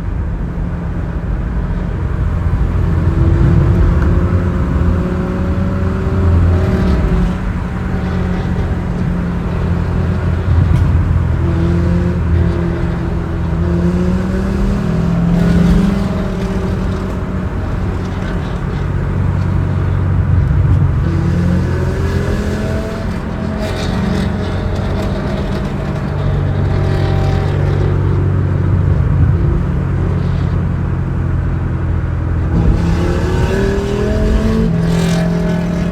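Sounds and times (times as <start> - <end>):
sports car engine revving: 0.0 - 35.9.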